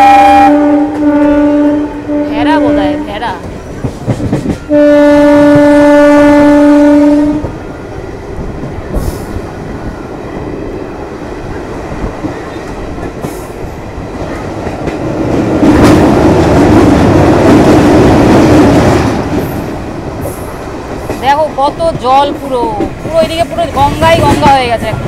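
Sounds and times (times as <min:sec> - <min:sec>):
train horn blast: 0:00.0 - 0:03.3, 0:04.7 - 0:07.5
train rolling noise: 0:00.0 - 0:25.0.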